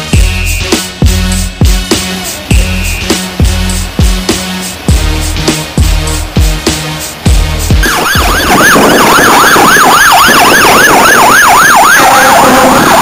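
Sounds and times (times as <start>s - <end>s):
drum beat: 0.0s - 8.6s
electronic siren yelping: 7.8s - 13.0s.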